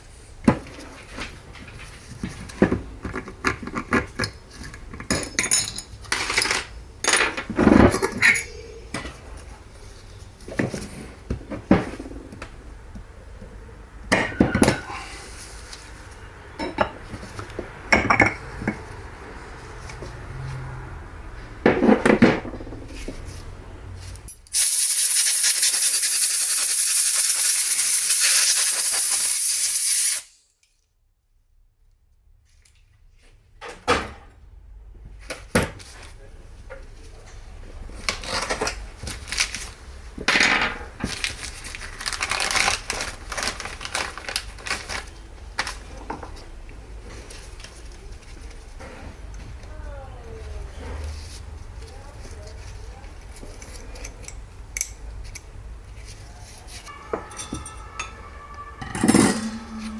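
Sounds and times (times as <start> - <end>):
metal parts clinking and knocking: 3.2 - 8.5
spray hissing: 24.5 - 30.4.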